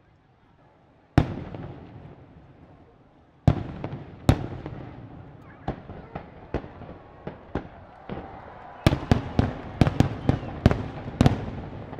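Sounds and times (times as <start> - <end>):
firework booms: 3.5 - 11.9.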